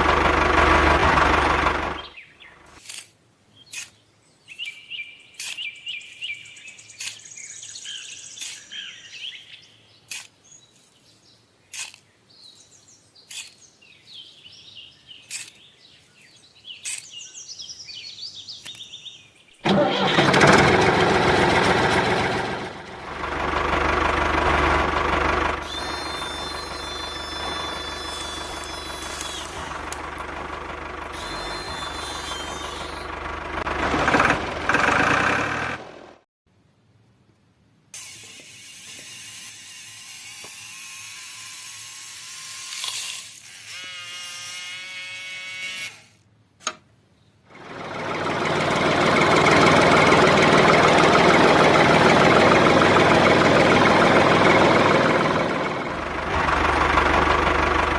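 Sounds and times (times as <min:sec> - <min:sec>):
birds chirping: 0:01.8 - 0:02.8, 0:03.5 - 0:19.6
small motor running with whine: 0:25.6 - 0:33.2, 0:38.0 - 0:46.2.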